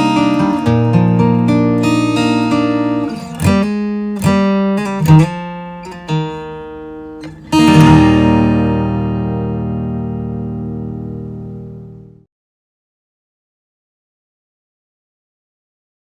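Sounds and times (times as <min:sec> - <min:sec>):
acoustic guitar strummed chords: 0:00.0 - 0:12.3.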